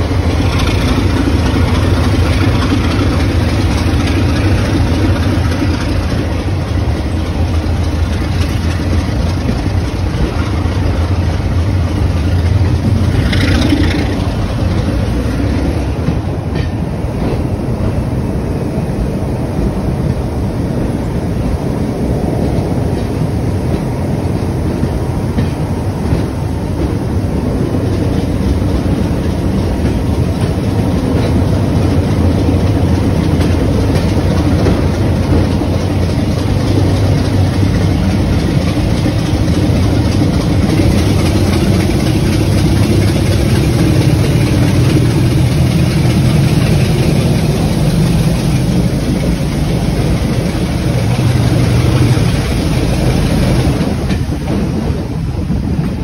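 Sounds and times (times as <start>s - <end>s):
heavy engine drone: 0.0s - 19.1s, 34.6s - 55.7s
train rumble: 0.0s - 56.0s.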